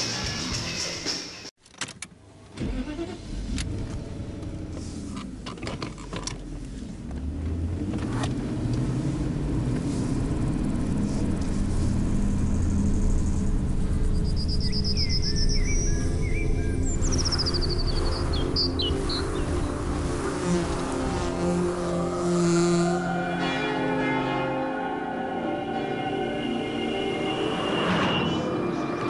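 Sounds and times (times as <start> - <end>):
car engine rumbling: 2.2 - 27.5
birds chirping: 13.9 - 21.3.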